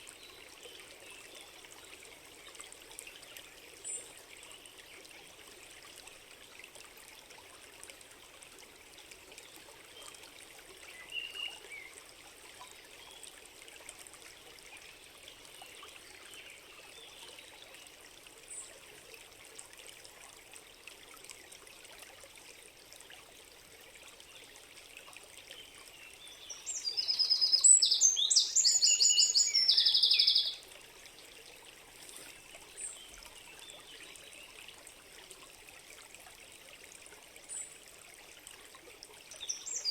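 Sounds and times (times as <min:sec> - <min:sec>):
stream trickling: 0:00.0 - 0:39.9
songbird singing rapid high notes: 0:26.8 - 0:30.6.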